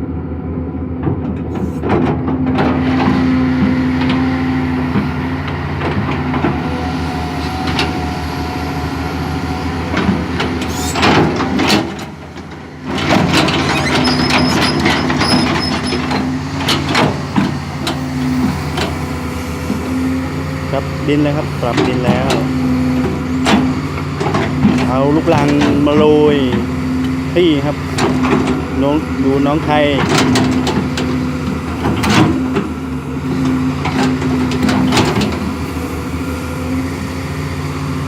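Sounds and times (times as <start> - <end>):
excavator diesel engine: 0.0 - 38.0
machine knocks and clanks: 9.9 - 19.0, 29.8 - 35.6.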